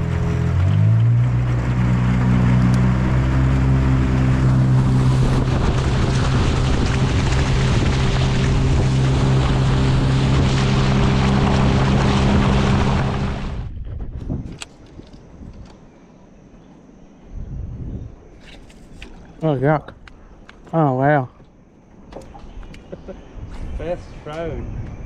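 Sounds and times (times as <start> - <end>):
water rushing past: 0.0 - 13.7
outboard motor running: 0.0 - 14.6
wind rushing: 3.9 - 14.6.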